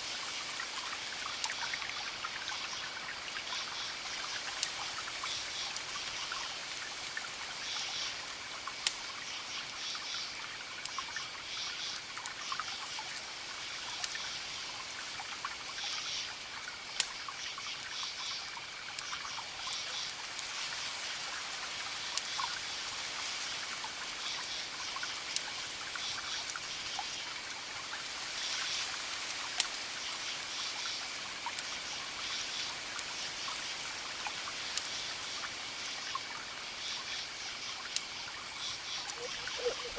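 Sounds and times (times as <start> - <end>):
campfire crackling: 0.1 - 39.9
crickets trilling: 30.0 - 39.9.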